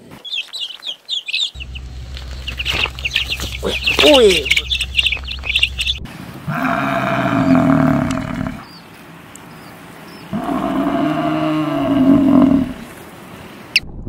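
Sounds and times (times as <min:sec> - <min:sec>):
water buffalo mooing: 0:01.6 - 0:08.6, 0:10.3 - 0:12.8.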